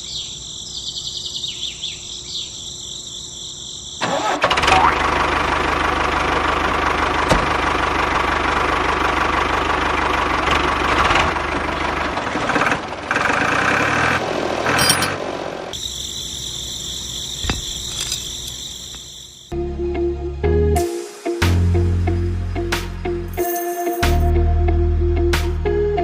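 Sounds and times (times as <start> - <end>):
small tractor engine running: 4.0 - 15.7.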